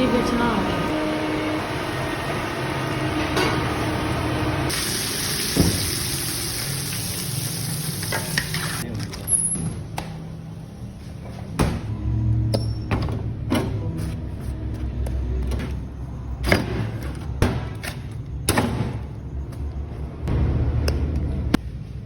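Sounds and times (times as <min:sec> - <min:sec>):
food sizzling on a grill: 0:04.7 - 0:08.8.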